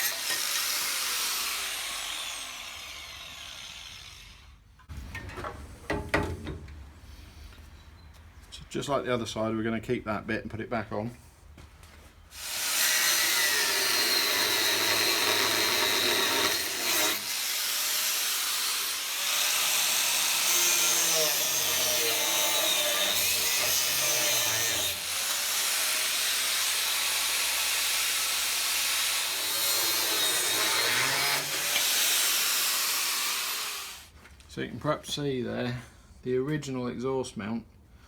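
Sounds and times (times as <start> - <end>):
angle grinder cutting steel: 0.0 - 4.6, 12.4 - 34.1.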